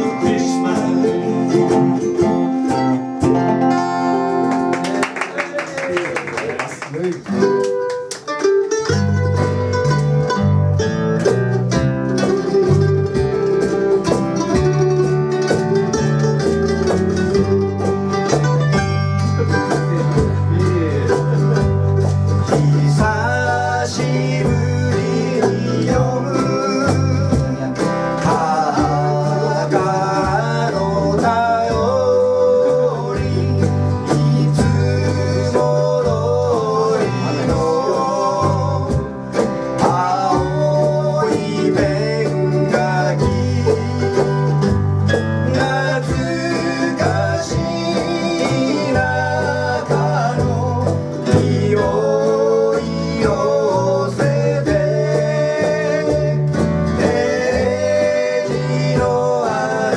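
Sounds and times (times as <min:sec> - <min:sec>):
person singing: 0:00.0 - 0:04.5, 0:19.2 - 0:59.9
bass line: 0:00.0 - 0:04.9, 0:08.9 - 0:59.9
plucked acoustic guitar: 0:00.0 - 0:05.4, 0:06.9 - 0:59.9.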